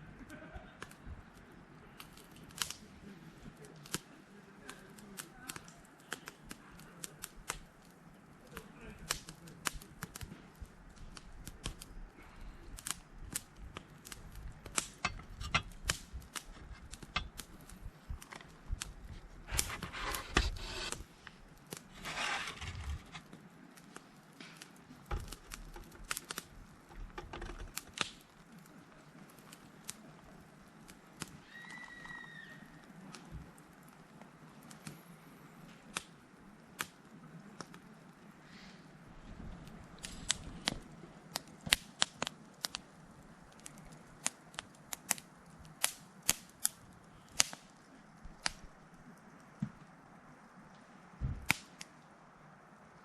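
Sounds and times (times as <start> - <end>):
rustling: 1.9 - 36.1.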